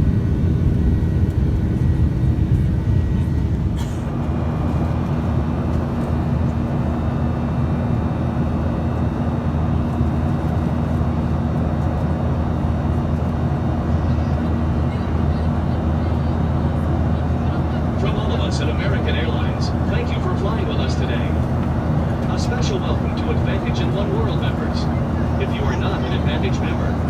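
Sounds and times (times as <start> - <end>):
jet engine and airflow rumble: 0.0 - 27.0.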